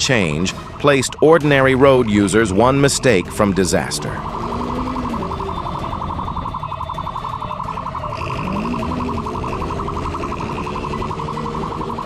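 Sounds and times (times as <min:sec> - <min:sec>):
pulsing electronic siren: 0:00.0 - 0:12.0
motorcycle engine revving: 0:02.9 - 0:12.0.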